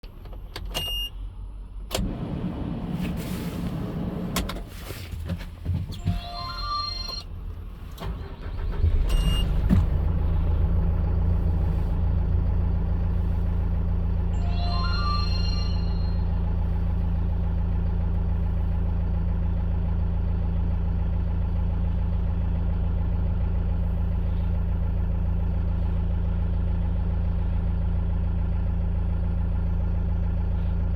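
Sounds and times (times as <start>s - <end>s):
diesel engine starting and idling: 0.1s - 30.9s
short electronic beep: 6.0s - 7.3s, 14.4s - 16.6s.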